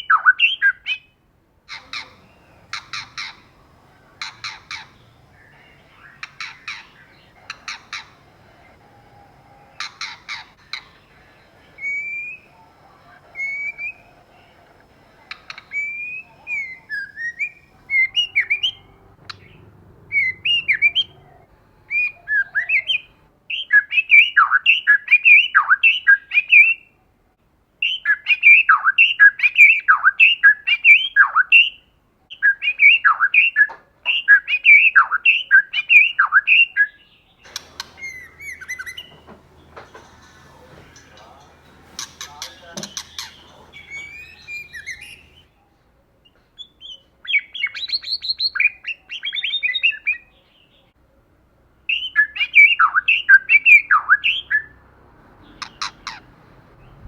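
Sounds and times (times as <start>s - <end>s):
bird whistling repeated notes: 1.7s - 26.7s, 37.5s - 45.4s.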